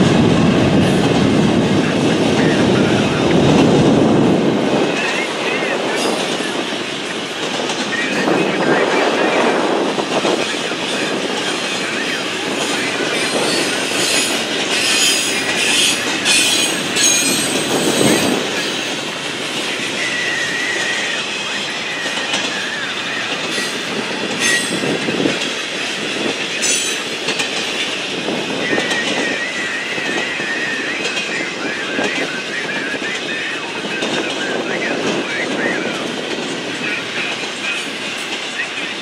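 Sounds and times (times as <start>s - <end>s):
train wheels clattering on rail: 0.0s - 39.0s.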